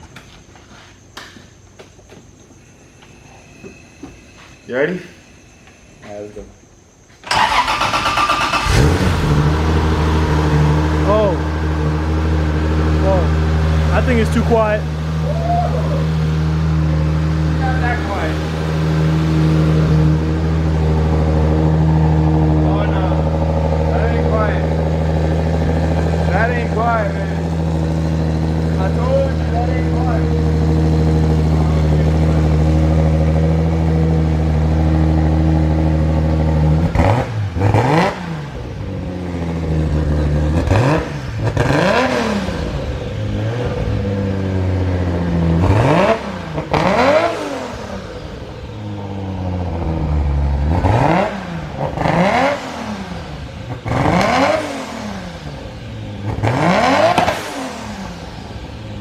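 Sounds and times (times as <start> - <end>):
car engine idling: 1.0 - 59.0
engine short revs: 7.2 - 14.6, 36.1 - 59.0.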